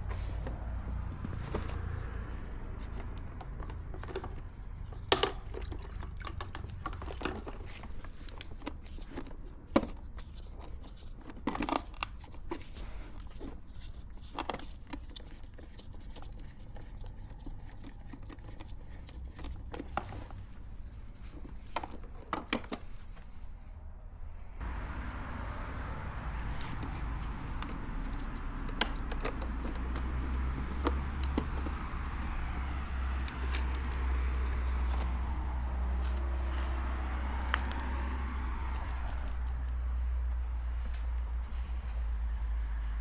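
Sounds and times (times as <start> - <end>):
crinkling rustles: 0.0 - 23.7, 26.3 - 43.0
low rumble: 23.4 - 28.6.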